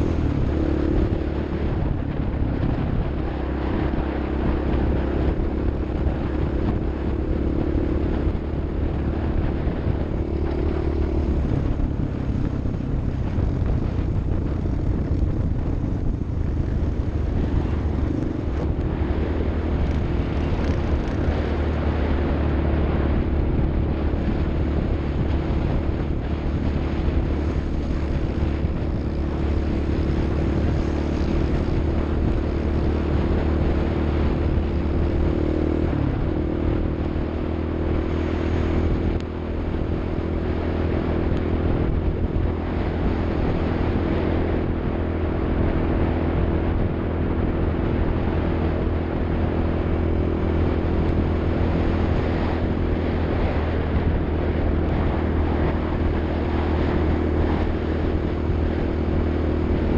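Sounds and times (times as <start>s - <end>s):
vehicle engine running: 0.0s - 59.9s
wind and road noise: 0.0s - 59.9s.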